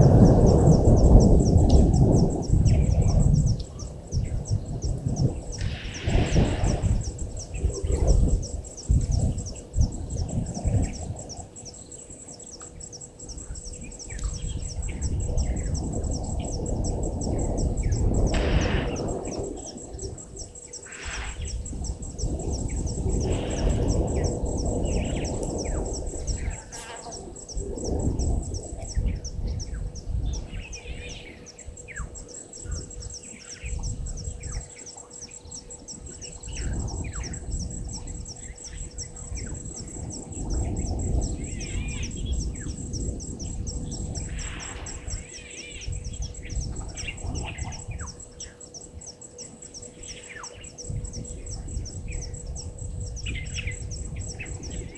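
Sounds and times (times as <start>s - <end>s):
birds chirping: 0.0s - 54.9s
low rushing noise: 13.8s - 28.3s.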